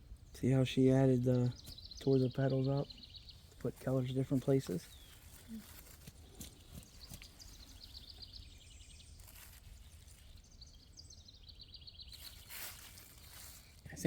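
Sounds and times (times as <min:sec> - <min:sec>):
faint outdoor ambience: 0:00.0 - 0:14.0
songbird trilling: 0:00.8 - 0:05.8.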